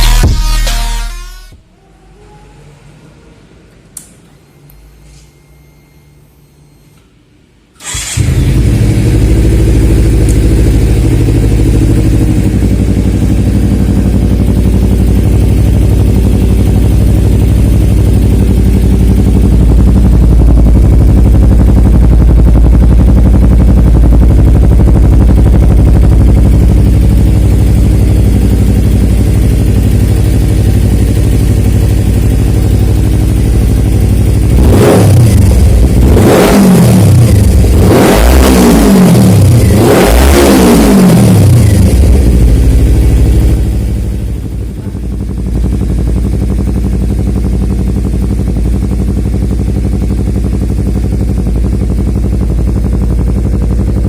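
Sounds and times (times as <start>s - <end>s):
motorcycle engine idling and revving: 7.8s - 54.0s.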